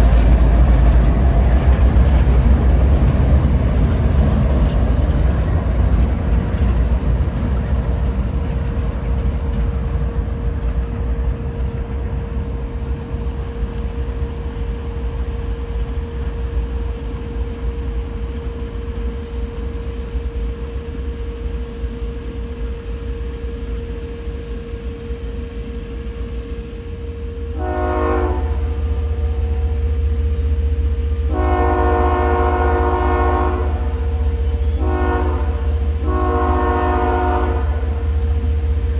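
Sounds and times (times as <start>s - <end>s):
train rumbling: 0.0s - 38.9s
locomotive air horn: 27.0s - 38.9s.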